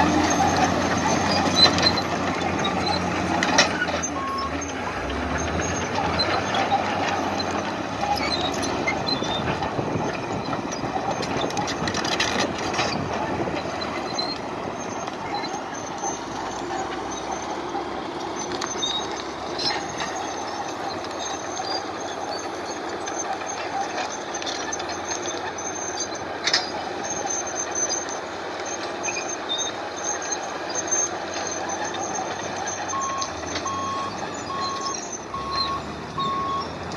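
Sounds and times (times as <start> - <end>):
heavy vehicle engine rumble: 0.0 - 36.9
reversing alarm beeping: 4.0 - 4.7, 32.8 - 36.8.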